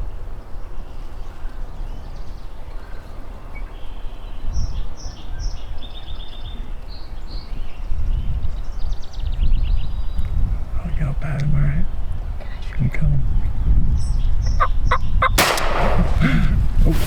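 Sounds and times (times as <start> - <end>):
wind buffeting microphone: 0.0 - 17.0
bird chirping: 11.3 - 16.6.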